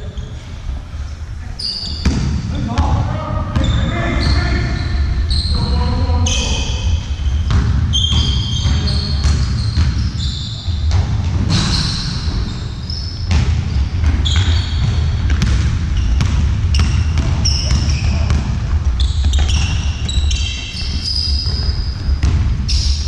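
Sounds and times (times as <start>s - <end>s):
shoes squeaking on floor: 1.6s - 2.2s, 3.6s - 15.3s, 15.9s - 23.0s
ball bouncing and striking: 2.0s - 3.0s, 7.3s - 10.2s, 13.2s - 22.9s.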